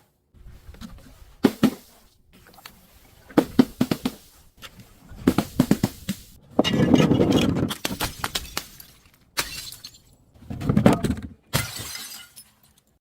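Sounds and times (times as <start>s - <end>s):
glass shattering and crunching: 6.6s - 10.2s, 11.5s - 12.9s
sharp cracks of glass fragments: 7.7s - 10.1s, 11.5s - 12.8s.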